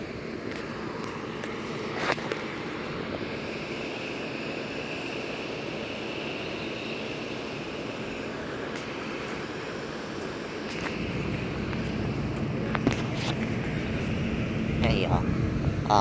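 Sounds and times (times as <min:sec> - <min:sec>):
faint high hum: 0:00.0 - 0:16.0
traffic: 0:00.0 - 0:16.0
wind rushing: 0:11.0 - 0:16.0.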